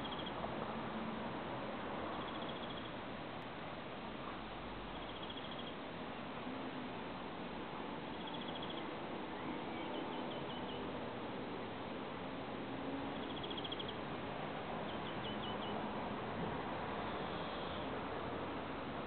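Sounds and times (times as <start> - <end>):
background hiss: 16.6 - 19.0.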